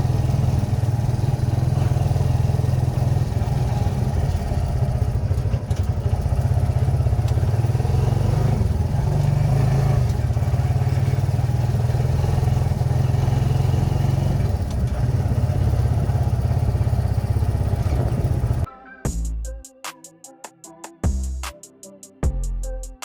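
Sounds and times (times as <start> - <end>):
motorcycle engine running: 0.0 - 18.7.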